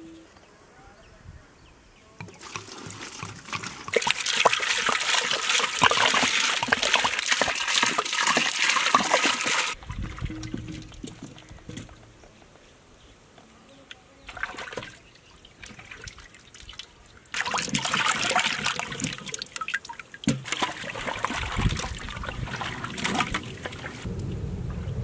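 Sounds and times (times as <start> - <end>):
water splashing in a metal basin: 2.3 - 12.1, 14.3 - 24.1.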